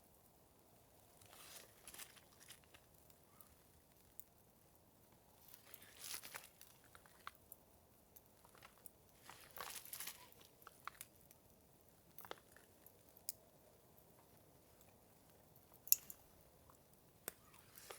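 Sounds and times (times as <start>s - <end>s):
crinkling and rustling: 1.2s - 3.6s, 5.4s - 7.4s, 8.4s - 11.2s, 15.9s - 17.9s
small clicks and ticks: 5.4s - 11.4s, 12.0s - 17.9s.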